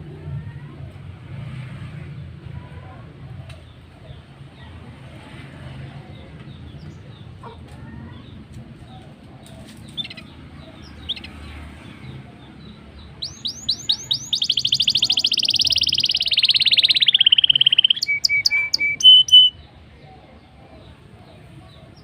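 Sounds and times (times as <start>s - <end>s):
small birds chirping: 6.1s - 22.0s.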